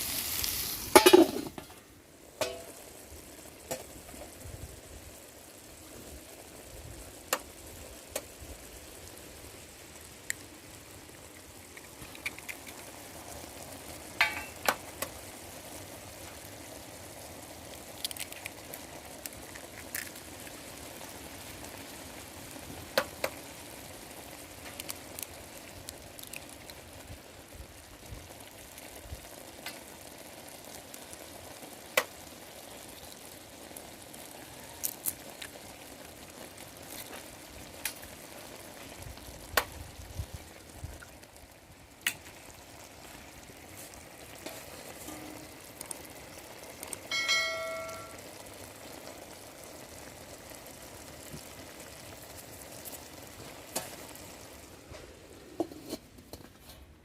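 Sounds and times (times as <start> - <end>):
food sizzling in a pan: 0.0 - 56.8
utensil tapping a pan: 1.0 - 1.6, 2.4 - 2.8.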